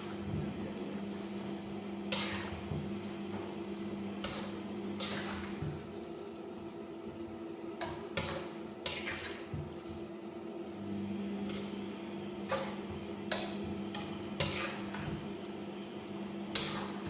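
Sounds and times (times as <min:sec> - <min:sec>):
utensil clanking against pan: 0:11.5 - 0:15.2.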